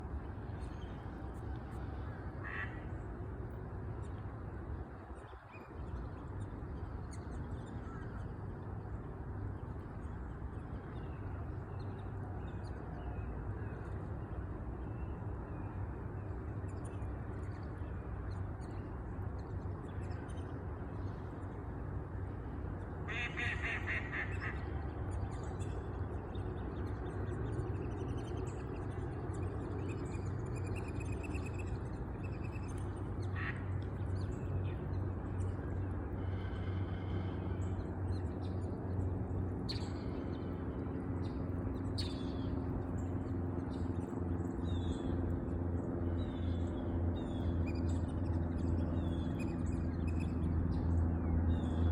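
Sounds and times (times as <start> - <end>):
water bird rattling call: 2.4 - 2.8, 23.1 - 24.6, 33.3 - 33.6.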